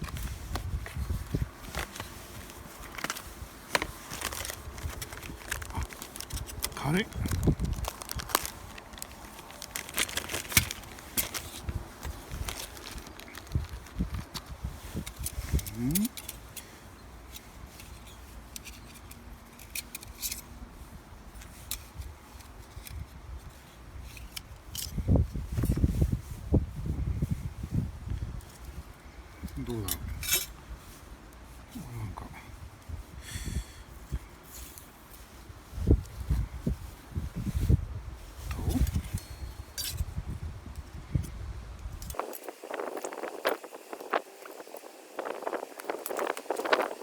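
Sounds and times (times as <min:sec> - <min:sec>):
packaging rustling and crinkling: 0:00.0 - 0:16.6, 0:42.1 - 0:47.0.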